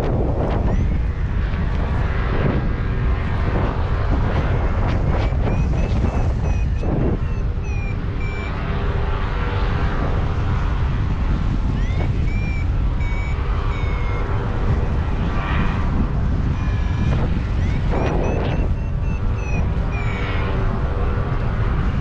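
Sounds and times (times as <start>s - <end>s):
wind buffeting microphone: 0.0s - 22.0s
short electronic beeps: 4.4s - 8.7s, 11.8s - 15.4s, 16.5s - 20.6s.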